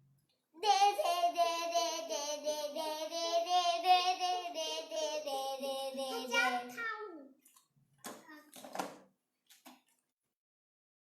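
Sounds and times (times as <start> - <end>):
child singing: 0.6 - 7.1.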